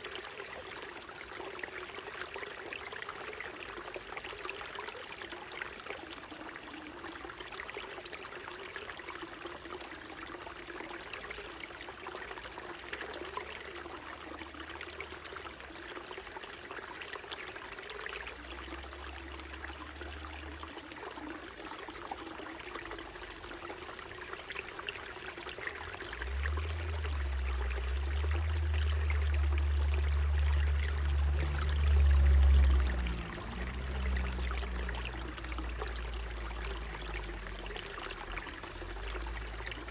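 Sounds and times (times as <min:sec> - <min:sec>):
stream babbling over rocks: 0:00.0 - 0:39.9
low rumble: 0:26.3 - 0:37.5.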